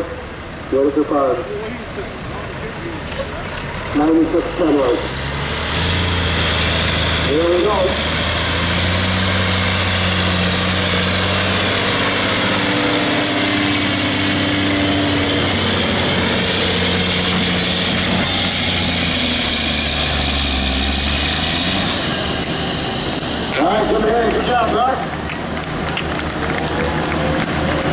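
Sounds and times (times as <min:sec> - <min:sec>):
diesel truck engine under load: 0:00.0 - 0:27.9.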